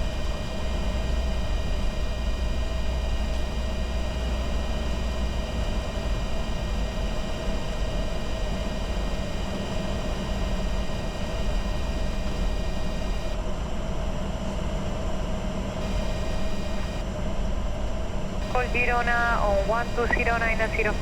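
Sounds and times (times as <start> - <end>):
jet engines droning: 15.8 - 21.0.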